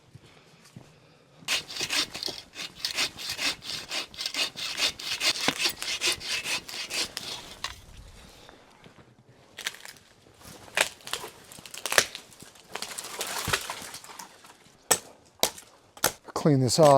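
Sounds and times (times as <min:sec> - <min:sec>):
hand saw cutting wood: 0:01.5 - 0:07.8.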